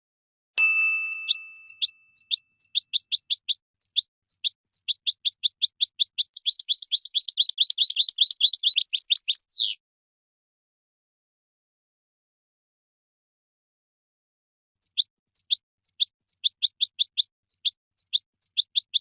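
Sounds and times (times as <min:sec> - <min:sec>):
goldfinch singing: 0:01.1 - 0:09.8, 0:14.8 - 0:19.0.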